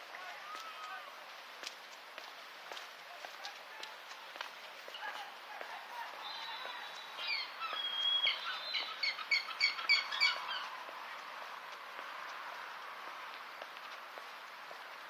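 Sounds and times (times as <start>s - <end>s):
small songbird singing: 6.2s - 10.7s.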